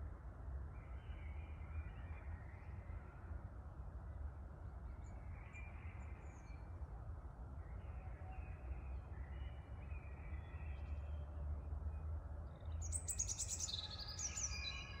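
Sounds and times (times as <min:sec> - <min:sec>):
outdoor city hum: 0:00.0 - 0:15.0.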